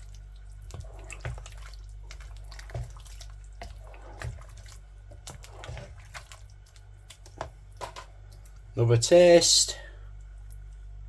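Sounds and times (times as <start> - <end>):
spoon stirring wet sauce: 0.0 - 8.8
steady low hum: 0.0 - 11.0.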